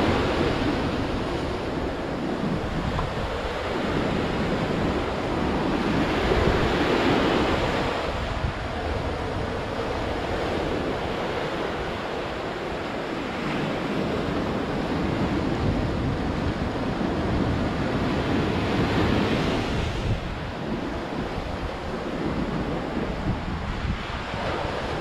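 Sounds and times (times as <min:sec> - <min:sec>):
sea waves breaking on shore: 0:00.0 - 0:25.0.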